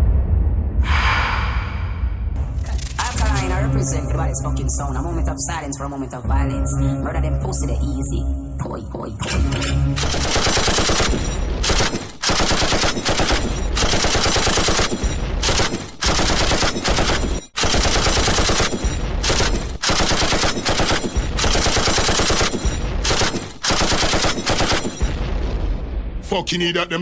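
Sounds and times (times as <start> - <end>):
machine-gun fire: 10.0 - 25.9.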